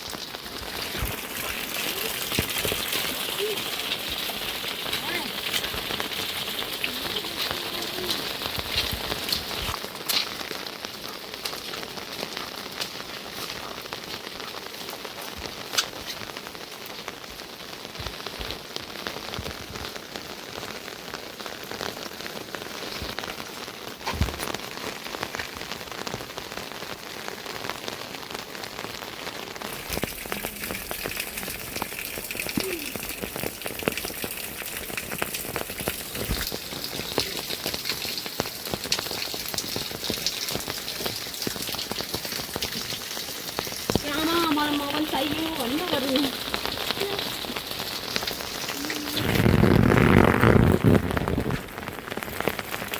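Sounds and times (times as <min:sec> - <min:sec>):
rain falling: 0:00.0 - 0:52.9
raindrops striking close by: 0:00.0 - 0:52.9.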